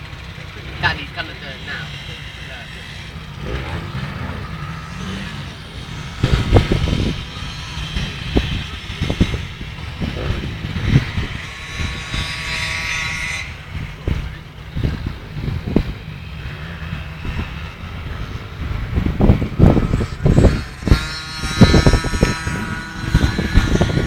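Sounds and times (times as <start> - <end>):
motocross bike engine whine: 0.0 - 24.0.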